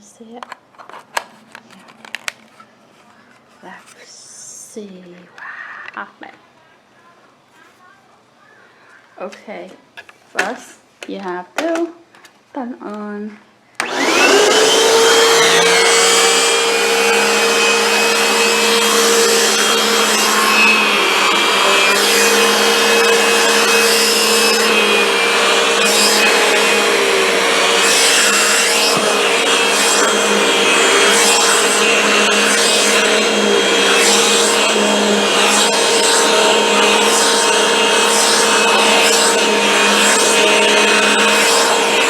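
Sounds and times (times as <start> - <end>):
vacuum cleaner running: 13.8 - 42.0.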